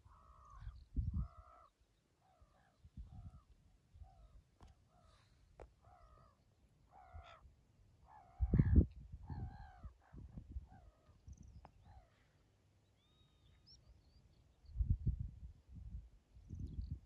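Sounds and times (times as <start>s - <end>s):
birds cawing harshly: 0.0s - 1.7s, 4.9s - 7.4s, 8.1s - 10.0s.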